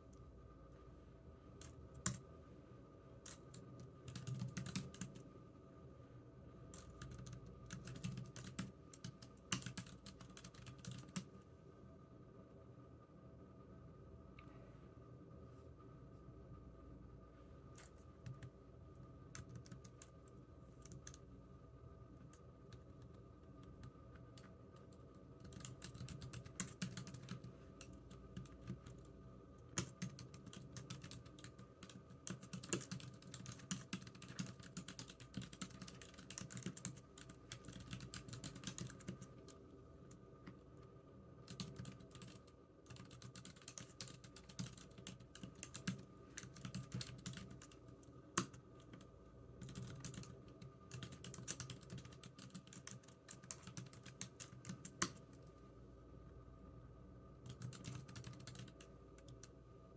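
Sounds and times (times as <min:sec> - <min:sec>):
faint steady hum: 0:00.0 - 0:59.9
keyboard typing: 0:03.2 - 0:05.2, 0:06.8 - 0:11.3, 0:17.8 - 0:18.6, 0:19.3 - 0:21.2, 0:22.2 - 0:29.1, 0:29.7 - 0:39.6, 0:41.4 - 0:47.8, 0:48.4 - 0:55.3, 0:57.4 - 0:59.5.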